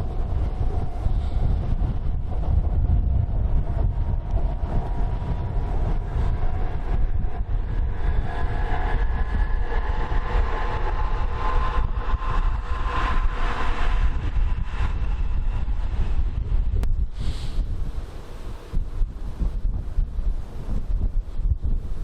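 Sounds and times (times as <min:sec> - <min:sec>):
electric train running past: 0:00.0 - 0:16.8
wind buffeting microphone: 0:00.0 - 0:22.0.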